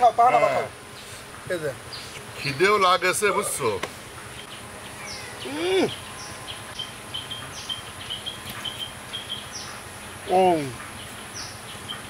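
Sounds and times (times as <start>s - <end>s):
small birds chirping: 0.0s - 12.0s
man humming: 5.4s - 6.0s.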